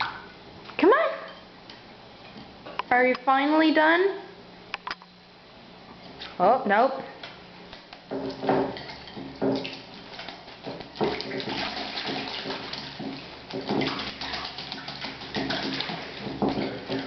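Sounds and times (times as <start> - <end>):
bird splashing water: 8.3 - 17.0.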